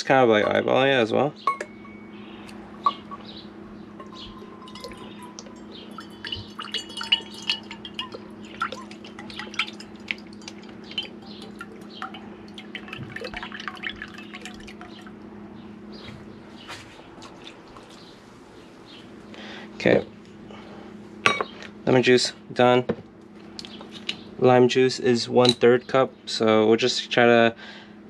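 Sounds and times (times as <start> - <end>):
steady low hum: 0.0 - 28.0
juice dripping into a cup: 3.9 - 15.4.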